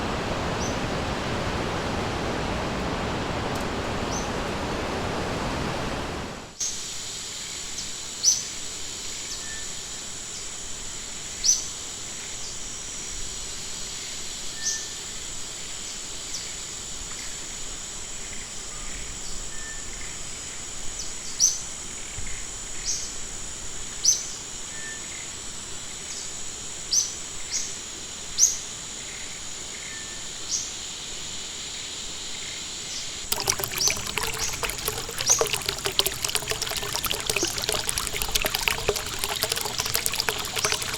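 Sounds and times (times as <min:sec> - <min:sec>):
stream trickling and splashing: 0:33.3 - 0:40.9.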